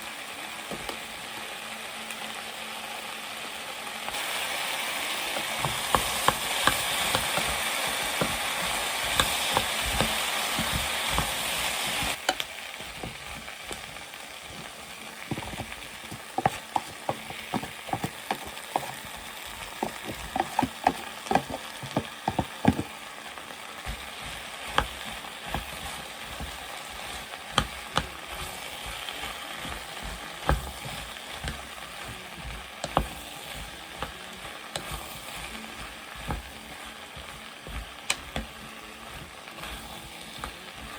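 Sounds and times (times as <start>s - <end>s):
vegetables sizzling in a pan: 0.0s - 40.9s
utensil knocking against pan: 5.6s - 14.7s, 15.3s - 22.9s, 24.7s - 29.0s, 29.6s - 38.6s.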